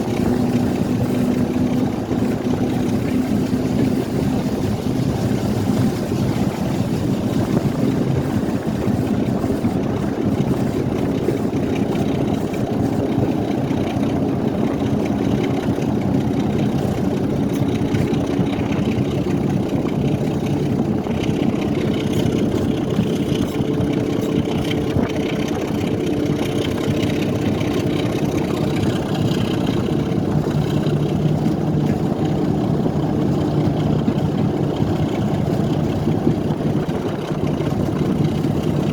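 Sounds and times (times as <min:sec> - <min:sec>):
continuous rumble: 0:00.0 - 0:38.9
train engine drone: 0:00.0 - 0:38.9.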